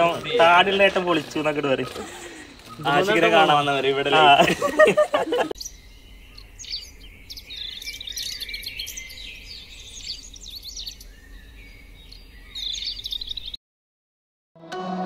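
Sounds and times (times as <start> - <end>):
birds chirping: 0.0 - 13.6
music: 14.6 - 15.0.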